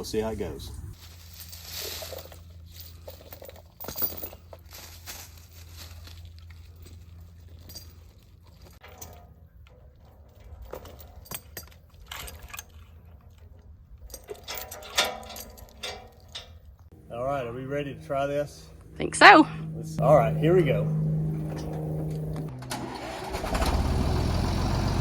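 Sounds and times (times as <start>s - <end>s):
low steady hum: 0.0s - 22.5s
metal chain clinking: 1.1s - 16.8s.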